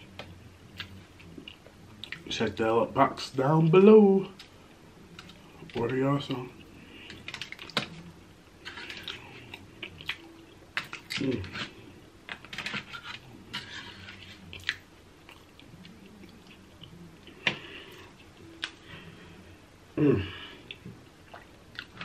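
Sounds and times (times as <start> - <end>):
wet chewing and smacking: 7.1 - 8.0, 14.4 - 17.3, 20.7 - 22.0.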